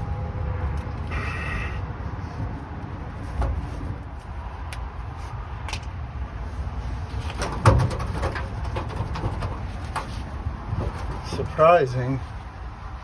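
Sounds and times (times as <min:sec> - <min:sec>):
loud clatter: 0:07.3 - 0:10.1.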